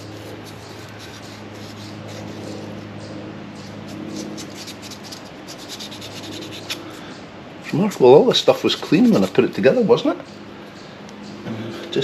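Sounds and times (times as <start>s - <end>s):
rubbing and scratching: 0.0s - 2.9s, 3.6s - 7.0s, 8.5s - 9.7s
steady low hum: 0.0s - 12.0s.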